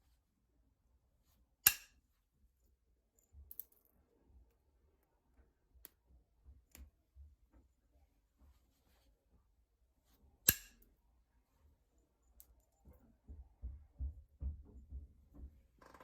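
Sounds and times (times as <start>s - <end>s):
stone flake snapping click: 1.6s - 2.0s, 10.5s - 10.8s.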